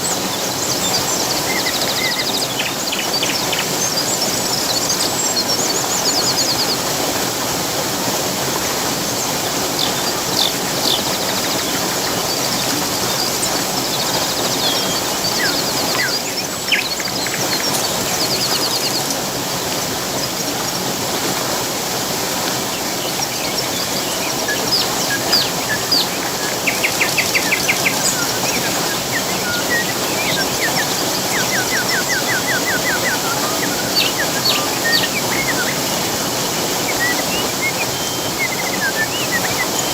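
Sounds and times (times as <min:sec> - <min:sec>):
falling water rushing: 0:00.0 - 0:39.9
songbirds chirping: 0:00.0 - 0:39.9
rapid bird trill: 0:09.1 - 0:19.4, 0:22.7 - 0:39.9.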